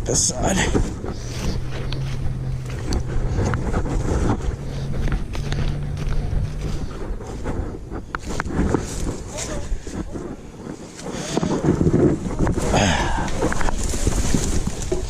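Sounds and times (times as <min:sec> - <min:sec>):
low engine hum: 0:00.0 - 0:10.6
wind buffeting microphone: 0:00.0 - 0:15.0.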